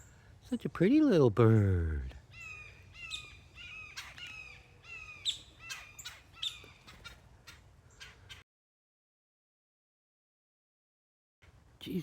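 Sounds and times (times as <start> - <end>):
birds making harsh calls: 1.5 - 8.4.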